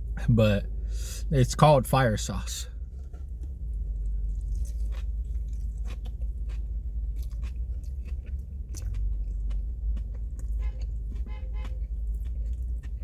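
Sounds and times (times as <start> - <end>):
steady low hum: 0.0 - 13.0
chewing food with crunching: 3.0 - 13.0.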